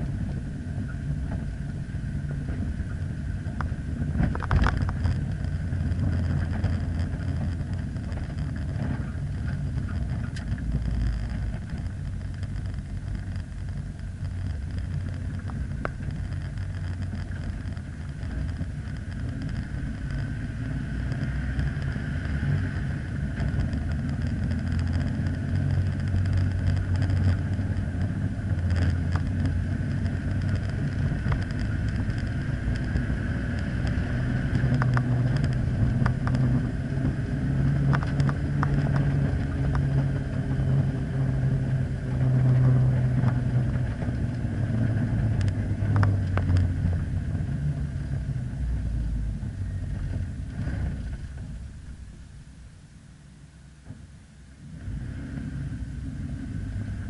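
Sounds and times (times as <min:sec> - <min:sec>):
short clicks and rattles: 0:03.6 - 0:20.5.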